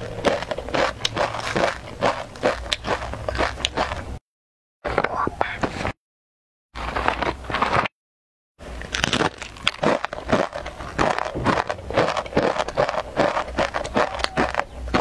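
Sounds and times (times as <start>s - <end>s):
crunching rice crackers: 0.0s - 4.2s, 6.8s - 7.9s, 8.6s - 15.0s.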